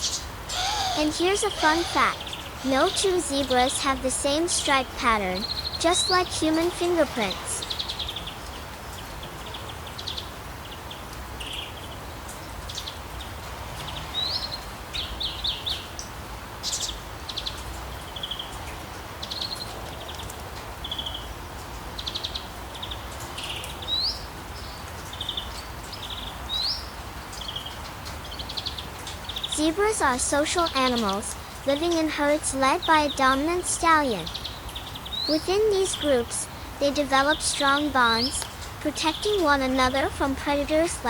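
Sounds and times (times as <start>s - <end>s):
birds chirping and trilling: 0.0s - 12.0s, 22.0s - 41.0s.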